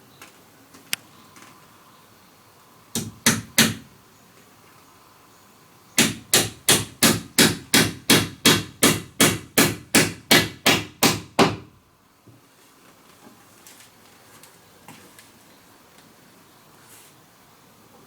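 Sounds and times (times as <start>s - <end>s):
hammer striking: 3.0s - 3.9s, 6.0s - 11.7s.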